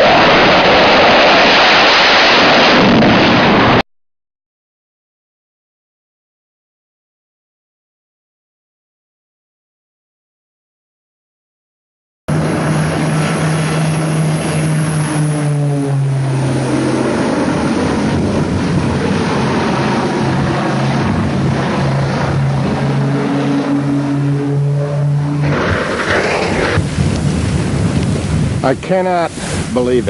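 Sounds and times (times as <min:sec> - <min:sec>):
dense rushing noise: 0:00.0 - 0:03.8, 0:12.3 - 0:30.0
propeller aircraft engine drone: 0:00.0 - 0:03.8, 0:12.3 - 0:30.0.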